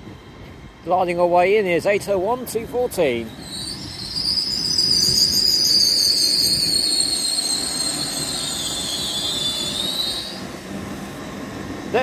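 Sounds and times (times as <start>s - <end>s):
train rumble: 0.0s - 12.0s
high-pitched train squeal: 3.2s - 11.3s.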